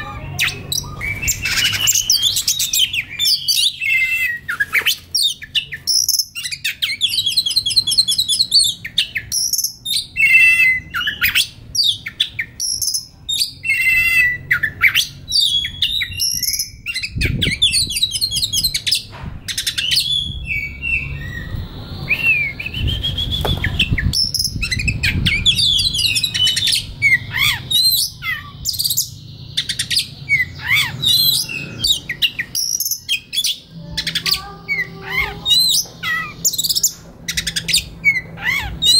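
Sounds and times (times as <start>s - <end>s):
bird singing whistles and trills: 0.4s - 38.9s
low rumbling noise: 15.2s - 29.5s.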